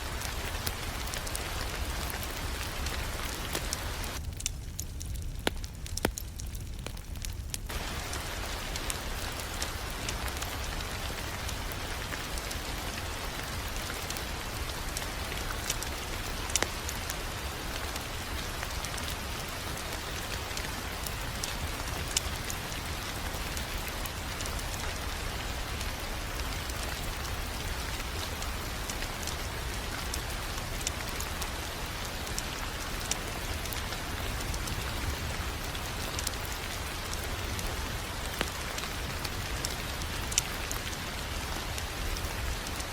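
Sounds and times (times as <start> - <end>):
wood fire crackling: 0.0 - 42.9
sharp pops from fire: 0.2 - 12.7, 14.9 - 17.1.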